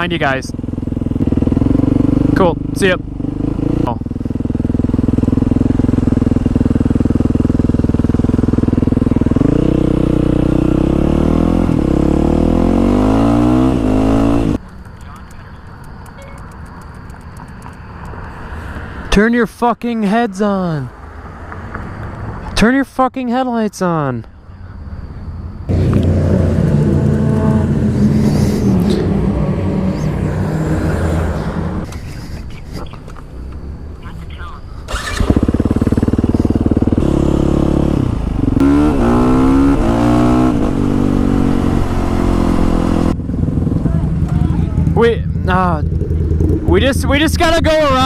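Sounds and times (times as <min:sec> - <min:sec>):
motorcycle engine idling: 0:00.0 - 0:10.8, 0:35.0 - 0:38.7, 0:43.2 - 0:48.0
motorcycle accelerating away: 0:00.0 - 0:14.6, 0:25.7 - 0:31.9, 0:34.9 - 0:48.0.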